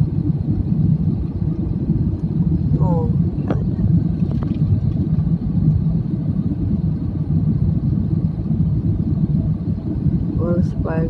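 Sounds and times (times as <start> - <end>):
airliner cabin rumble in flight: 0.0 - 11.0.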